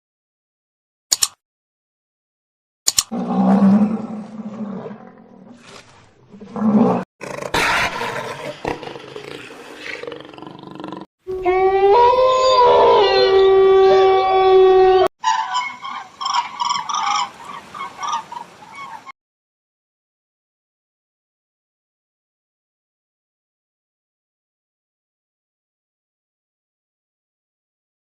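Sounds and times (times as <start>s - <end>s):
big cat growling roars: 3.1s - 11.1s
animal long pitched call: 11.3s - 17.2s.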